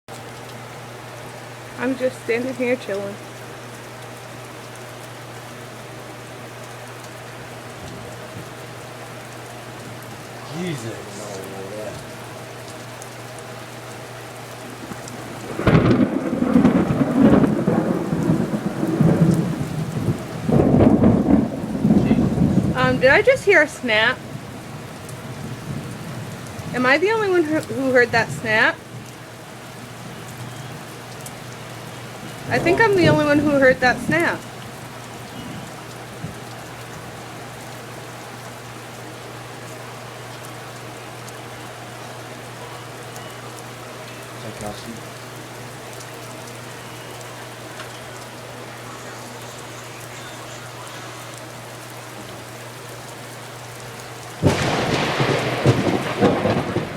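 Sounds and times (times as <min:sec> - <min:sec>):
steady rain: 0:00.1 - 0:56.9
thunder clap and rumble: 0:14.8 - 0:29.1, 0:31.8 - 0:36.4, 0:54.4 - 0:56.9.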